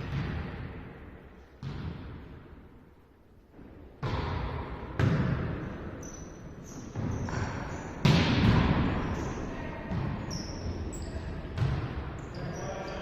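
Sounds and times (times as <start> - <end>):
volleyball hits echoing: 0.0 - 2.4, 4.0 - 5.9, 6.9 - 12.2
shoes squeaking on court floor: 5.6 - 8.1, 9.0 - 13.0.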